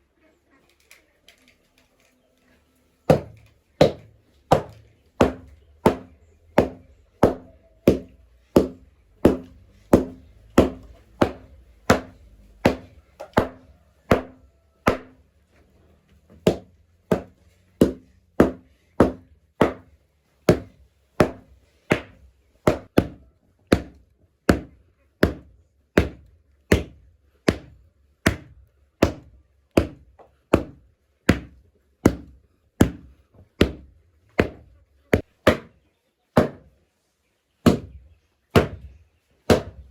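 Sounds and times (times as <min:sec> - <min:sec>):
hand tool chopping strikes: 0:03.1 - 0:15.2.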